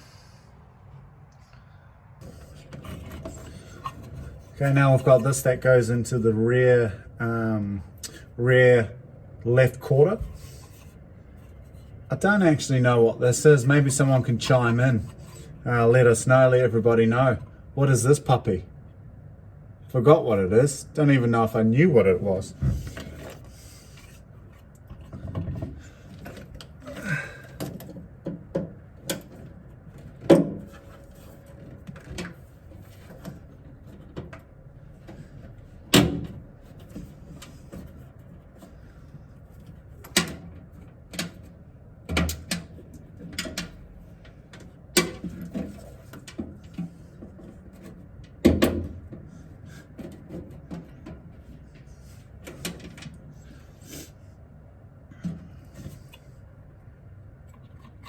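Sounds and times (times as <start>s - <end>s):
knocks and clicks of wiring clips: 42.1s - 43.8s.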